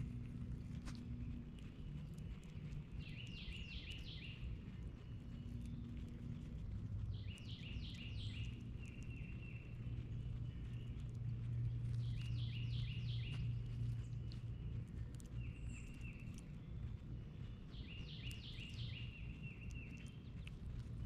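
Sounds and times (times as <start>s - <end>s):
steady low hum: 0.0s - 21.0s
songbird whistling: 3.0s - 4.4s, 17.7s - 20.2s.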